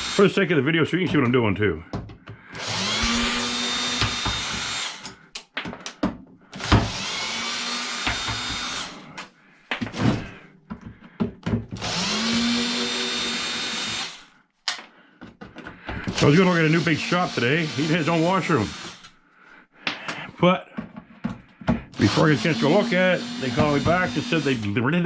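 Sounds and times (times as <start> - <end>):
power drill spinning: 0.0 - 0.5, 2.5 - 5.4, 6.5 - 9.3, 11.7 - 14.4, 16.0 - 19.2, 21.9 - 25.0.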